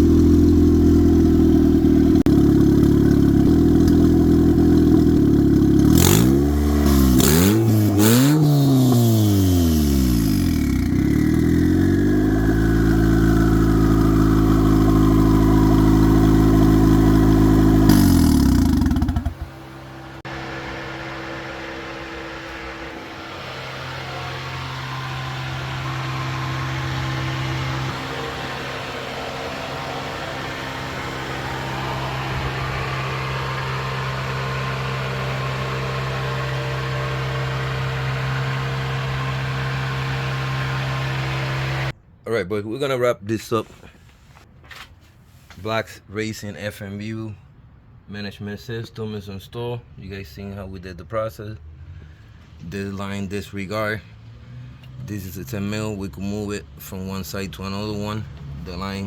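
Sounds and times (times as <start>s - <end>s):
car engine idling and revving: 0.0s - 42.0s, 51.6s - 59.0s
thin turbo whine: 0.0s - 42.0s.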